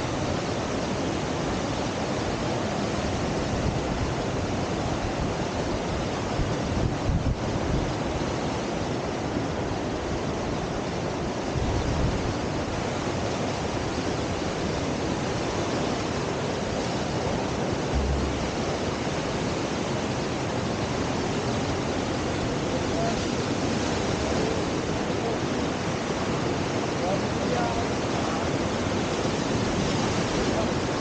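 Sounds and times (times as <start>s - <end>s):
river whitewater churning: 0.0s - 31.0s
wind buffeting microphone: 17.6s - 19.6s.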